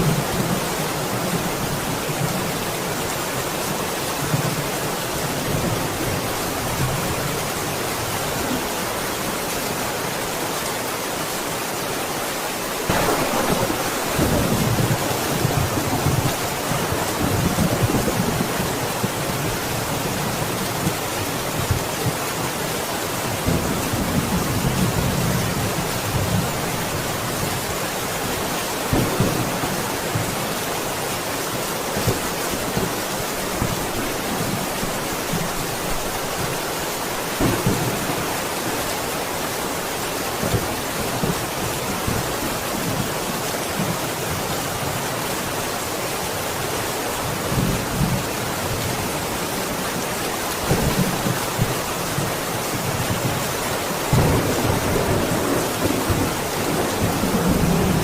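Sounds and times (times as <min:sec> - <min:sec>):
steady rain hiss: 0:00.0 - 0:58.0
low thunder rumbles: 0:12.9 - 0:20.5, 0:54.1 - 0:58.0.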